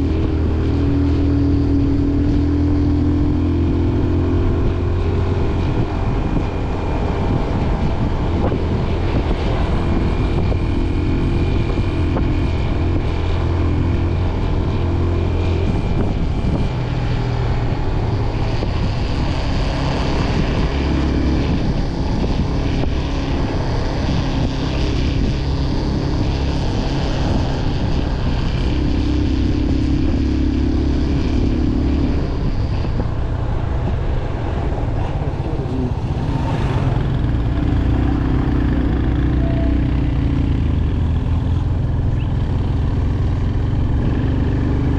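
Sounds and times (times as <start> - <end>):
motorcycle engine running: 0.0 - 44.9
wind rushing over microphone: 0.0 - 44.9.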